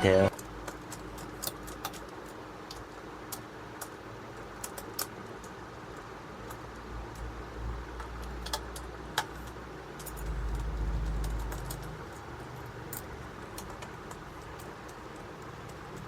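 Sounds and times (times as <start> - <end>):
low rumble: 9.6 - 13.6.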